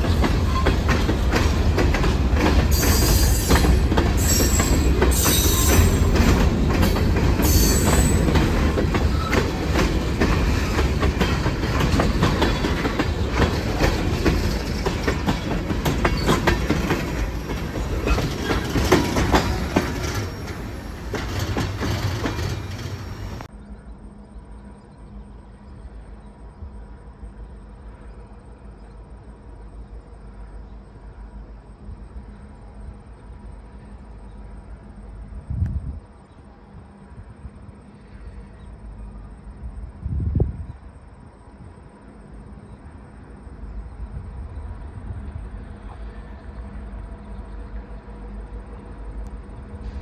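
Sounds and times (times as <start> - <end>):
train wheels clattering on rails: 0.0 - 23.5
train wheels squealing: 0.0 - 23.5.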